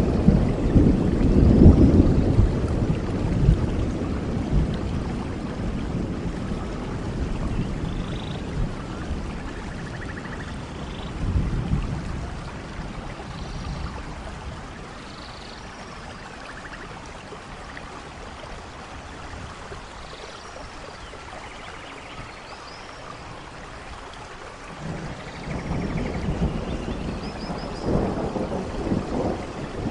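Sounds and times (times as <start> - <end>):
low thunder rumbling: 0.0 - 17.1, 24.7 - 29.9
steady rainfall: 0.0 - 29.9.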